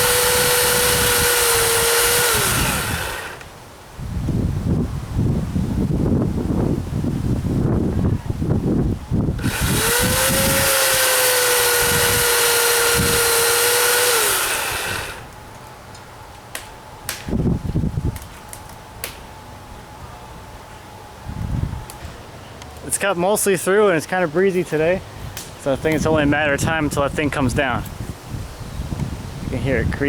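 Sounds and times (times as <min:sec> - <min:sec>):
wind buffeting microphone: 0:00.0 - 0:03.4, 0:04.0 - 0:15.3, 0:17.1 - 0:18.4, 0:21.2 - 0:22.2, 0:24.8 - 0:30.0
electric chainsaw cutting wood: 0:00.0 - 0:03.5, 0:09.3 - 0:15.4.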